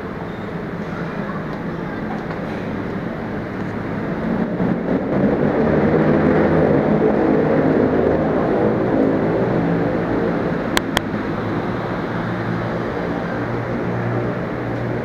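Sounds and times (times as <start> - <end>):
train engine drone: 0.0 - 15.0.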